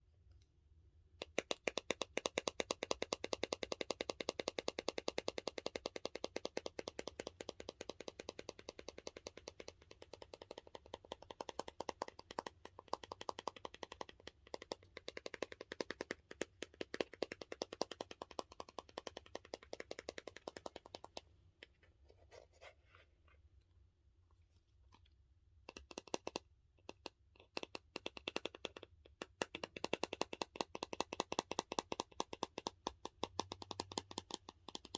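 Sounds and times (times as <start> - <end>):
fingernails tapping on plastic: 1.2 - 21.2, 25.7 - 34.9.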